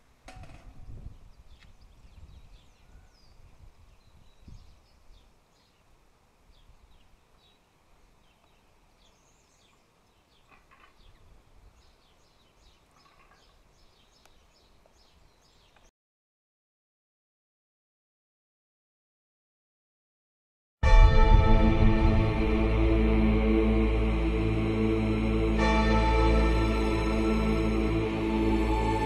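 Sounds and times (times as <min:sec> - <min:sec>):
faint birds chirping: 0:00.8 - 0:15.9
low background rumble: 0:20.8 - 0:29.0.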